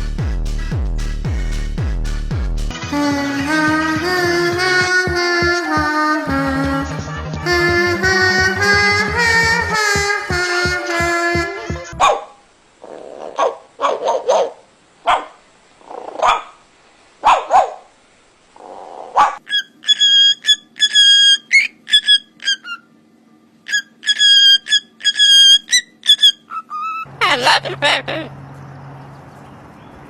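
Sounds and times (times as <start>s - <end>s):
dog barking: 12.0s - 12.4s, 13.3s - 15.4s, 16.1s - 16.6s, 17.2s - 17.9s, 19.1s - 19.4s
high-pitched whistling chirps: 19.4s - 22.9s, 23.7s - 27.1s.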